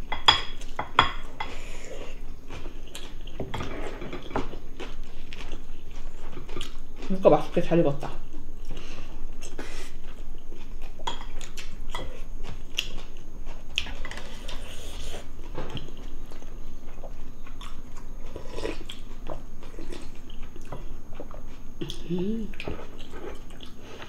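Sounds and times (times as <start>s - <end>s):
chewing and mouth smacking: 4.7s - 7.1s, 9.4s - 24.0s.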